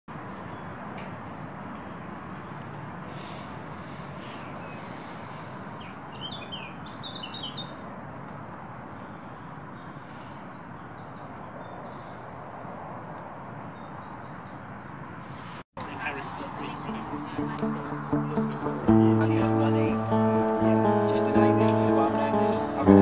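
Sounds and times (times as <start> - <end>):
songbirds chirping: 3.8 - 23.0.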